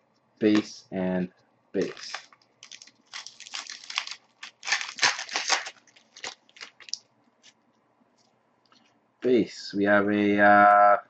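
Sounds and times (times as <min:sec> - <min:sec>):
wrapper tearing and crinkling: 0:01.8 - 0:07.0.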